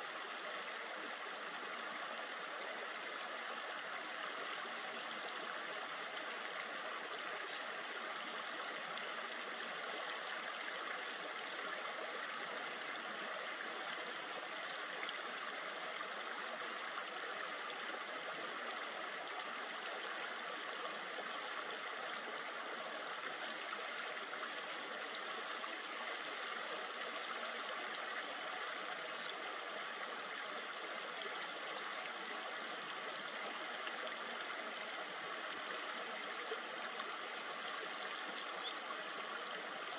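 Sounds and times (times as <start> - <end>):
river flowing over stones: 0.0 - 39.9
high bird chirps: 37.9 - 38.8.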